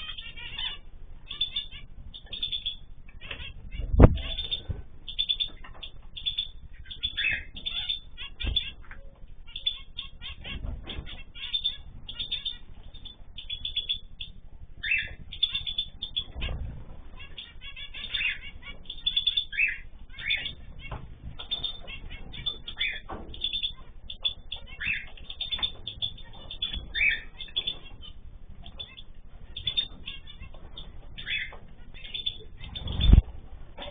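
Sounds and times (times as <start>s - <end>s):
cage birds chirping: 0.0s - 33.9s
wing flutters: 29.5s - 33.4s.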